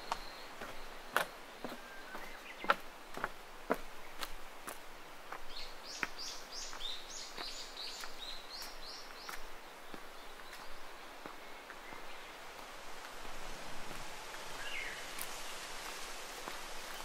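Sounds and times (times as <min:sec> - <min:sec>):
small bird singing: 0:00.0 - 0:02.8, 0:05.5 - 0:12.4, 0:14.5 - 0:15.7
footsteps on a path: 0:00.0 - 0:17.0.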